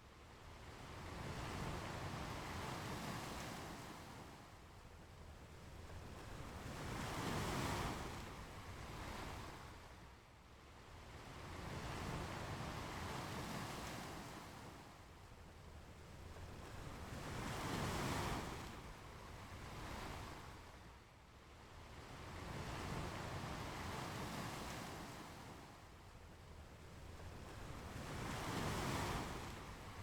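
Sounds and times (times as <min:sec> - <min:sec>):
ocean waves breaking on beach: 0:27.6 - 0:30.0.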